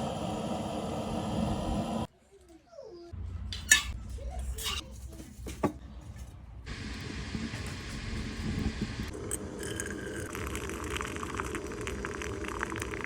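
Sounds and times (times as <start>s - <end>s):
tableware clinking: 3.6s - 4.0s.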